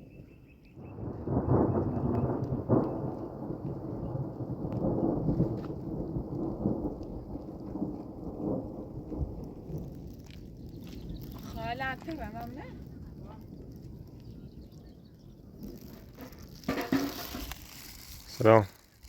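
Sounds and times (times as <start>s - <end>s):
thunder rumbling: 0.0s - 18.4s.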